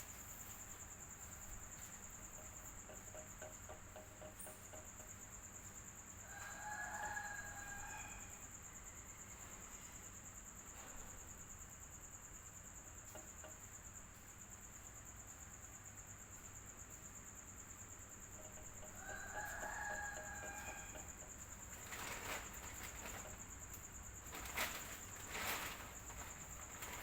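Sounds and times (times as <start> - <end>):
rooster crowing: 6.2 - 9.4, 18.5 - 23.2.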